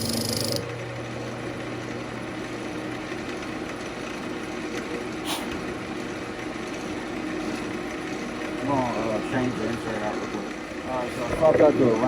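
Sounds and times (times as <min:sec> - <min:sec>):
lathe motor hum: 0:00.0 - 0:05.1.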